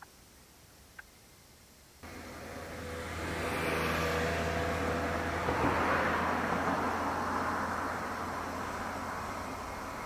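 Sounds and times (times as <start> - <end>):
high-speed train rushing: 2.0 - 9.9.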